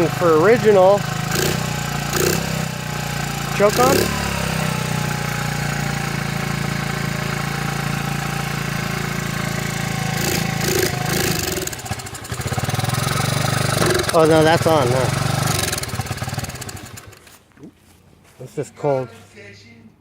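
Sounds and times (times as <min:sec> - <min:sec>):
small engine idling: 0:00.0 - 0:17.5.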